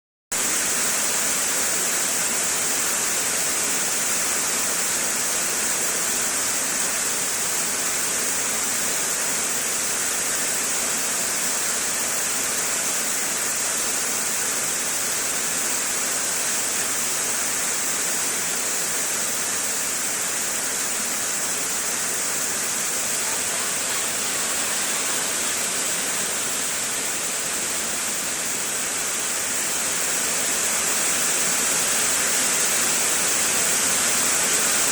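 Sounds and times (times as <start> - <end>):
heavy rain falling: 17.9 - 34.9.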